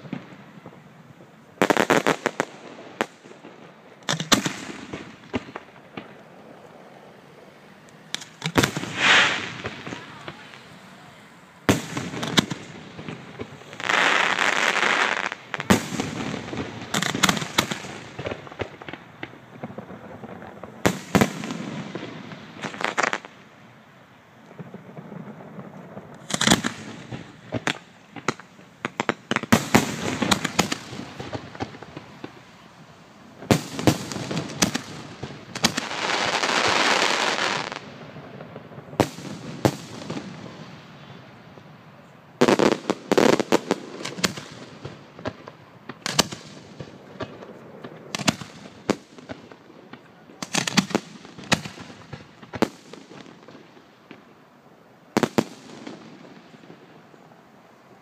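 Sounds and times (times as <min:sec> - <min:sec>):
firework hiss: 0:00.0 - 0:41.4
fireworks shells bursting: 0:07.8 - 0:10.9, 0:24.6 - 0:32.6.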